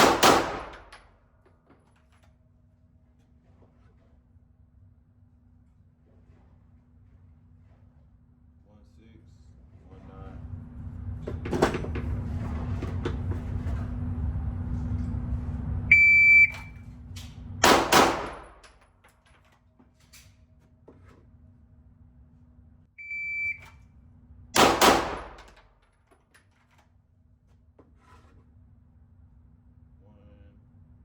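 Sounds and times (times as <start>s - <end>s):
handgun firing quick shots: 0.0s - 1.0s, 17.6s - 18.6s, 24.6s - 25.5s
shot timer beeping: 15.9s - 16.7s, 23.0s - 23.6s.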